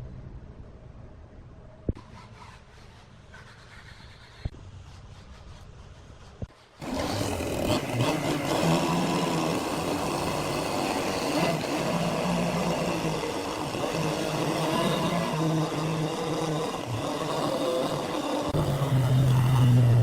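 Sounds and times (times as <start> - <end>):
woodworking machinery running: 6.8 - 20.0.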